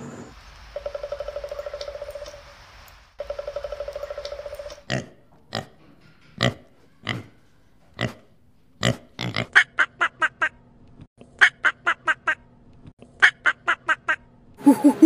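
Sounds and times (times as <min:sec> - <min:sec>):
pigs grunting: 0:06.4 - 0:07.4, 0:08.0 - 0:09.6
duck quacking: 0:11.4 - 0:12.4, 0:13.2 - 0:15.0.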